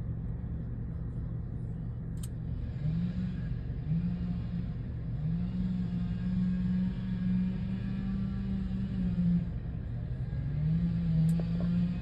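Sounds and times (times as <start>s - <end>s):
chainsaw revving and cutting: 2.6s - 4.6s, 5.2s - 9.5s, 10.1s - 12.0s.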